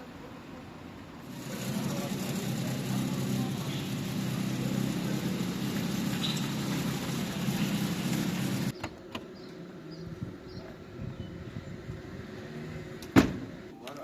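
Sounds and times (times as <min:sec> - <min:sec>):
motor hum: 0:01.2 - 0:08.7.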